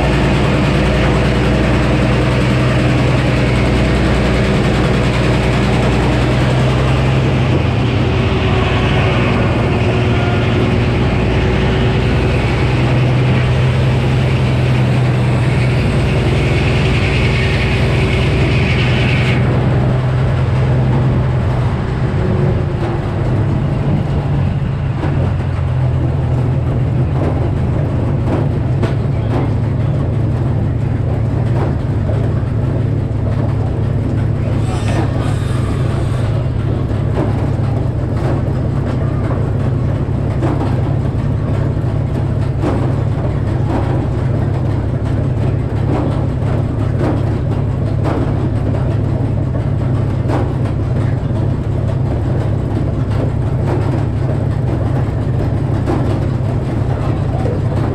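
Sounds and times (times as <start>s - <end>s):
saw blade cutting log: 0.0s - 20.8s, 34.4s - 36.8s
sawmill engine drone: 0.0s - 57.9s.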